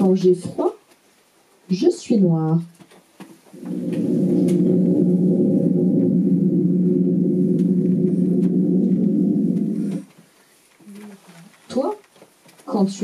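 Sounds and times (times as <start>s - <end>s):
low droning tone: 3.6s - 10.1s.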